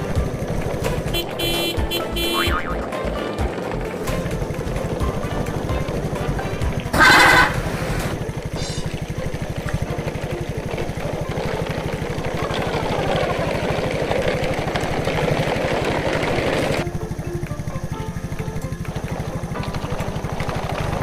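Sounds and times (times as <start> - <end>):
motor running with rapid pulse: 0.0 - 21.0
brief loud pitched sound: 2.2 - 2.8.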